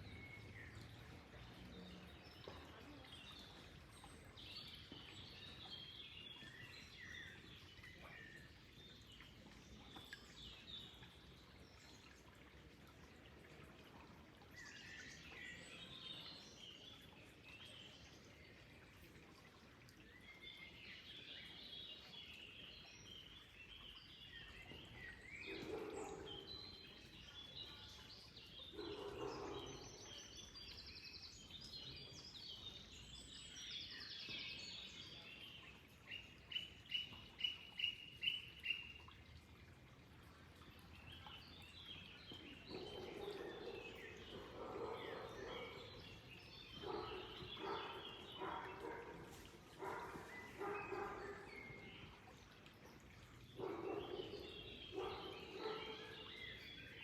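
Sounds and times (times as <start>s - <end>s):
birds chirping and singing: 42.4s - 49.0s, 53.6s - 56.6s.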